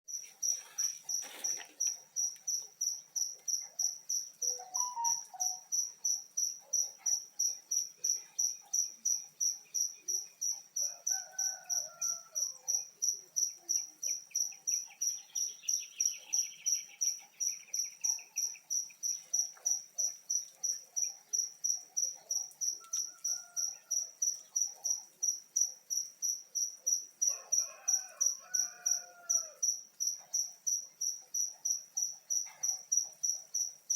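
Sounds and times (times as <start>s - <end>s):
cricket chirping: 0.1s - 33.9s.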